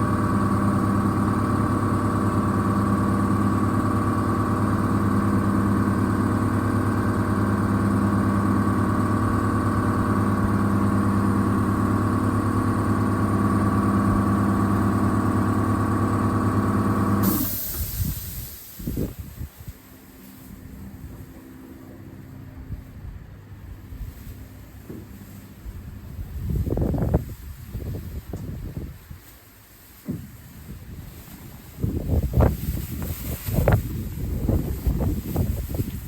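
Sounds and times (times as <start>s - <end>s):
engine humming steadily: 0.0s - 36.0s.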